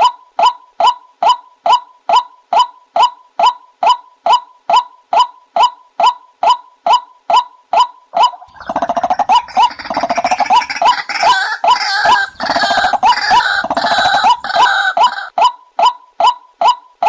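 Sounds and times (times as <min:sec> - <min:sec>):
bird sharp pitched calls: 0:08.2 - 0:15.3
birds chattering and gurgling: 0:08.4 - 0:15.3.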